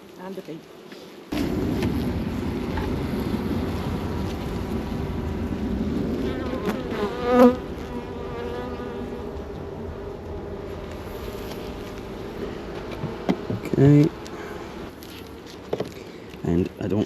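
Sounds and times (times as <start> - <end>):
single bee buzzing close by: 0.0 - 15.0
bees buzzing around hive: 0.0 - 16.8.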